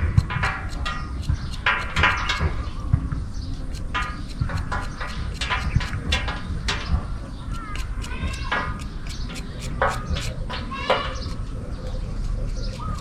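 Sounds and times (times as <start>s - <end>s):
quick clicks: 3.7s - 6.9s, 7.5s - 10.4s
short bird calls: 7.4s - 13.0s.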